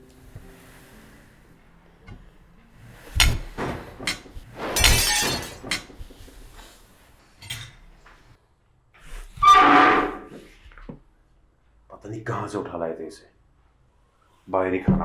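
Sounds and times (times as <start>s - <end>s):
broken pieces clattering: 3.2s - 6.0s
plate smashing: 3.2s - 6.0s.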